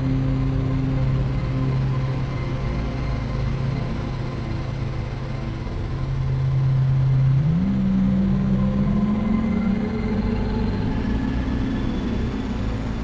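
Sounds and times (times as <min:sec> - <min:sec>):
synthesizer drone: 0:06.6 - 0:11.9.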